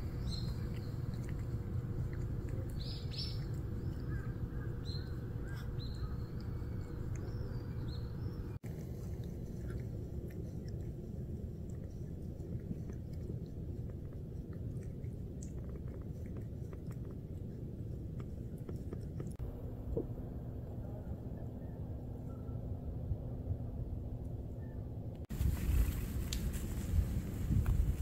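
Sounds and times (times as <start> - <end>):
cat licking its paw: 0.0 - 7.9, 8.6 - 19.4
small birds chirping: 0.0 - 19.4
outdoor background noise: 0.0 - 28.0.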